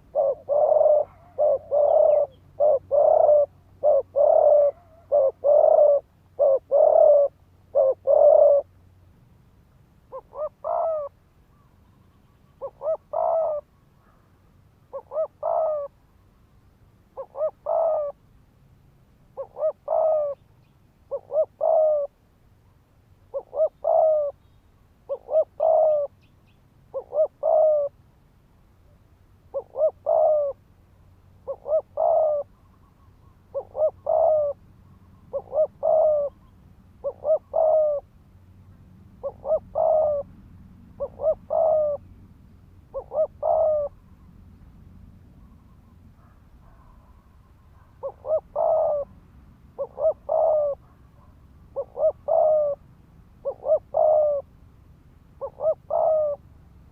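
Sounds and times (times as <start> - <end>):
dove cooing rapidly: 0.0 - 8.8, 10.1 - 11.2, 12.5 - 13.7, 14.8 - 16.0, 17.1 - 18.2, 19.3 - 22.2, 23.3 - 24.4, 25.1 - 26.3, 26.9 - 28.0, 29.5 - 30.7, 31.4 - 32.6, 33.2 - 34.6, 35.3 - 38.1, 39.2 - 42.2, 42.9 - 44.3, 45.4 - 52.8, 53.4 - 54.5, 55.4 - 56.9.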